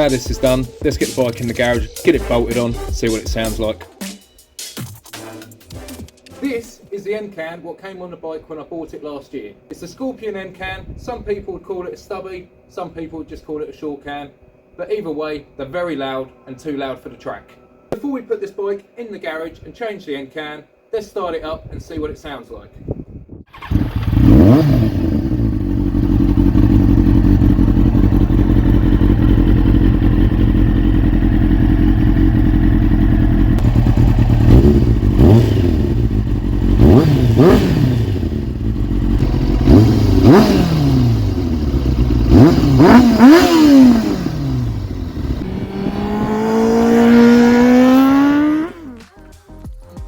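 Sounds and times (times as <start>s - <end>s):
motorcycle engine revving: 23.5s - 49.0s.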